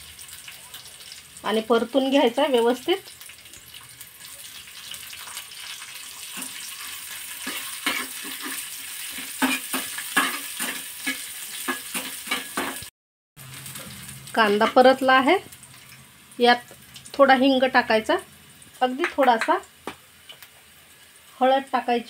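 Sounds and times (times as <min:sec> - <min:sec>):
vegetables sizzling in oil: 0:00.0 - 0:22.0
metal spatula scraping pan: 0:06.2 - 0:12.9.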